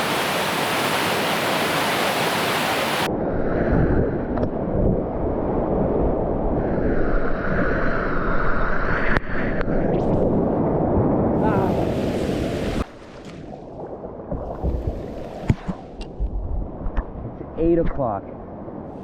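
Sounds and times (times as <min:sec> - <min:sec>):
rushing whitewater: 0:00.0 - 0:03.1
wind buffeting microphone: 0:00.0 - 0:12.9, 0:13.5 - 0:19.0.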